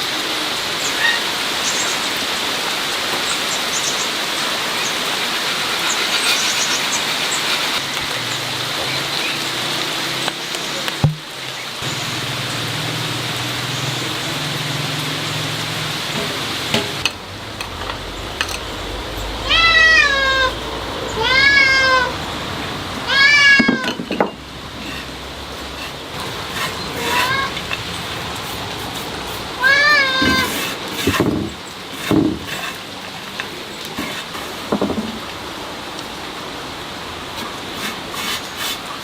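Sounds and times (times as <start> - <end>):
steady hiss: 0.0 - 8.6, 24.6 - 39.0
cat meowing: 19.4 - 20.6, 21.2 - 22.2, 23.1 - 24.0, 27.0 - 27.6, 29.6 - 30.5.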